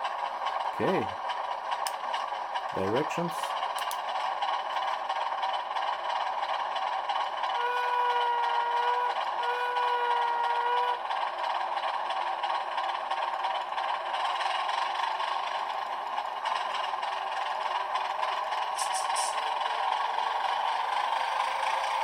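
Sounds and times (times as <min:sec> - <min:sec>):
model diesel engine sound: 0:00.0 - 0:22.0.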